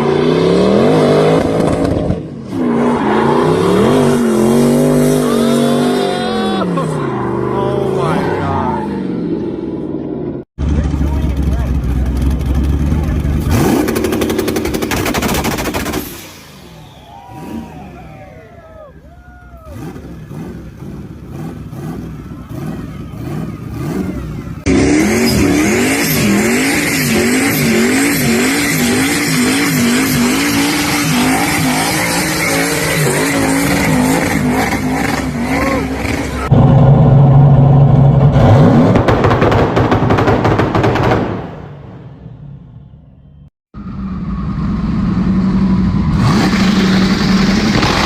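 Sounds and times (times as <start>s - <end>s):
car engine rapid popping: 10.6s - 16.3s, 38.3s - 41.6s, 46.3s - 48.0s
car engine revving rhythmically: 11.1s - 16.2s, 19.7s - 36.8s, 45.7s - 48.0s.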